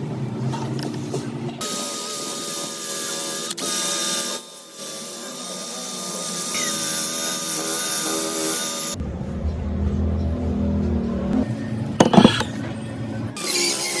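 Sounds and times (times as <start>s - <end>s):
electric power tool whining: 1.6s - 9.0s.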